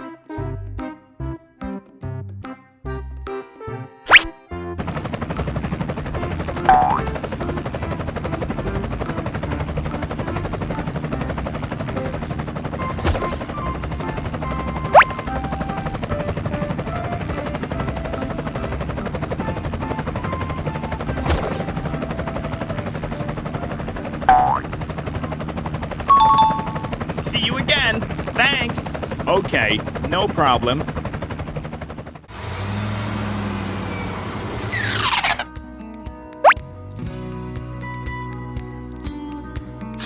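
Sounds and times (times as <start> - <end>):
sharp rising chirp: 6.7 - 7.1, 24.3 - 24.7.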